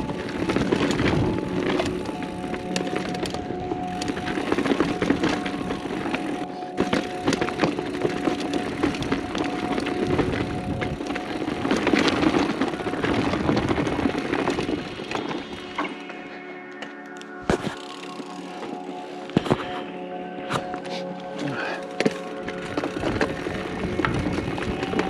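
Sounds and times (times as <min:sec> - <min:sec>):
bike parts knocking and rattling: 0:00.0 - 0:16.0, 0:22.0 - 0:25.0
tyres crunching over stones: 0:00.0 - 0:25.0.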